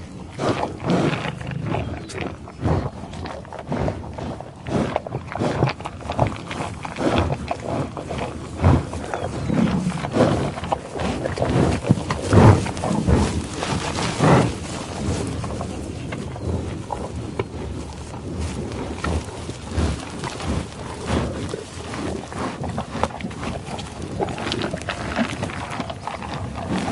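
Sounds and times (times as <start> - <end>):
lion growling and roaring: 0.0 - 17.2.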